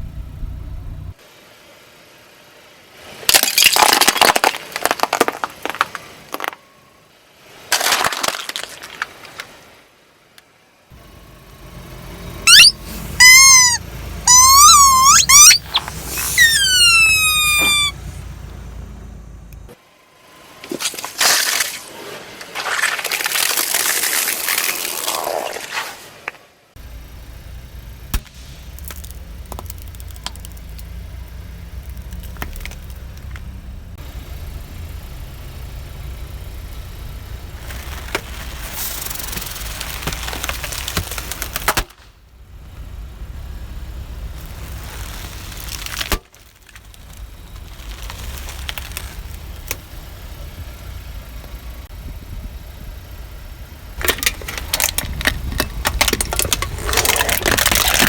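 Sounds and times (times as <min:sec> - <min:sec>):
car engine running: 0:00.0 - 0:01.2, 0:10.9 - 0:20.6, 0:26.8 - 0:58.0
tyres crushing crunchy objects: 0:03.3 - 0:06.6, 0:07.7 - 0:09.5, 0:28.1 - 0:33.6, 0:37.6 - 0:42.1, 0:44.4 - 0:49.8, 0:54.0 - 0:58.0.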